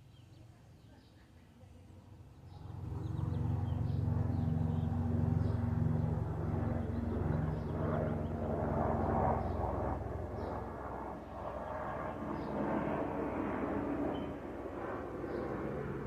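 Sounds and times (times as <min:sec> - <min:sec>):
small birds chirping: 0:00.0 - 0:13.0, 0:14.0 - 0:14.5, 0:15.1 - 0:15.8
low engine drone: 0:02.2 - 0:11.3.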